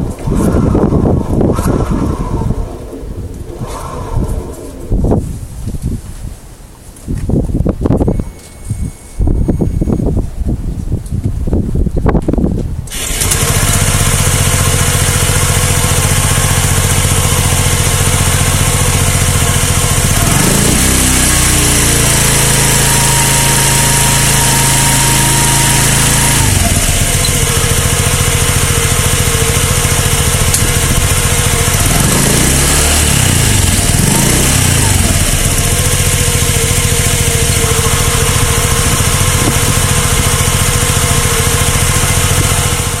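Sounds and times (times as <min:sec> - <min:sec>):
scooter engine running: 0:12.9 - 0:43.0.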